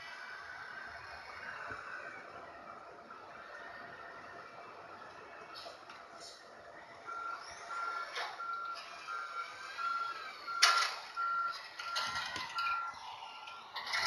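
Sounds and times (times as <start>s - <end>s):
reversing alarm beeping: 7.0s - 14.0s.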